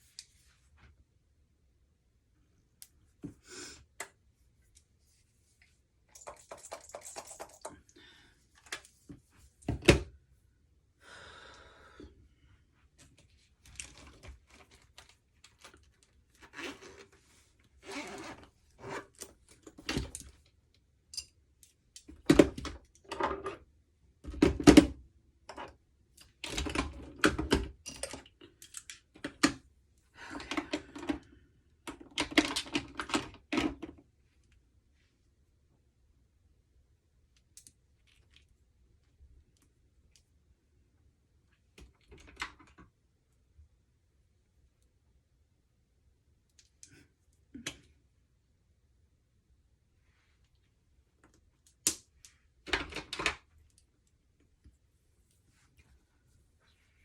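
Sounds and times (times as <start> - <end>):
objects clicking and knocking: 6.1 - 7.9.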